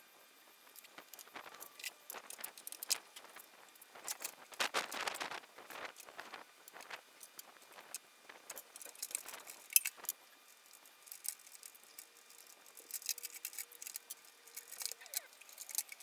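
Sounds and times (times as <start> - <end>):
metallic clicks of tools and parts: 8.6 - 16.0.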